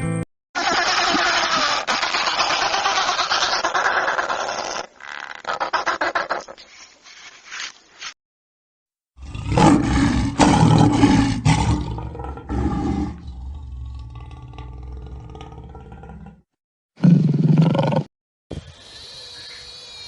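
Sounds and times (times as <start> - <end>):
large animal roaring: 9.2 - 16.4.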